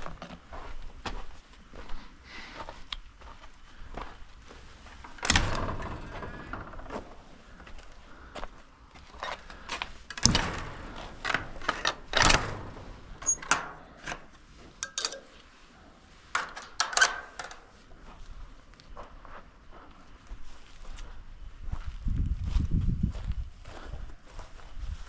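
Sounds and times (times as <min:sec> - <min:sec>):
coop door knocks and clatter: 0:05.1 - 0:07.3, 0:10.1 - 0:14.0.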